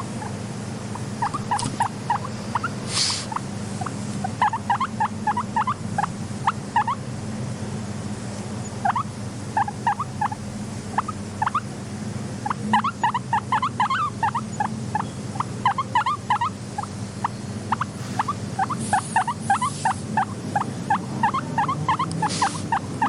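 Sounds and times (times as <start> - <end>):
guinea pigs squeaking: 0.0 - 7.0, 8.6 - 23.0
steady low hum: 0.0 - 23.0
brief hiss: 2.9 - 3.3.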